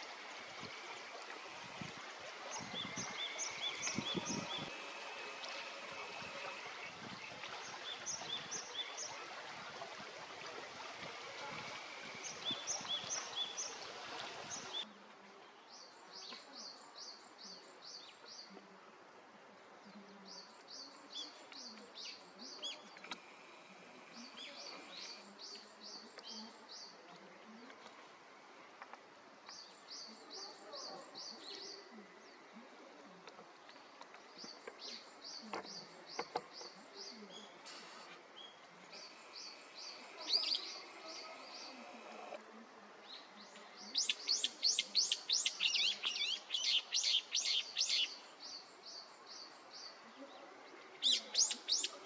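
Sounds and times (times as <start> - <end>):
small songbird singing: 0.0 - 9.3, 11.6 - 14.9, 38.4 - 42.4, 43.0 - 52.0
outdoor background noise: 0.0 - 52.0.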